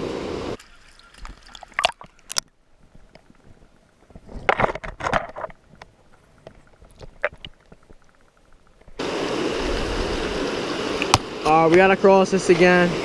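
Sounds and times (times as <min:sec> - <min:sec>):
stream water flowing: 0:00.0 - 0:13.0
rustling: 0:00.6 - 0:09.0.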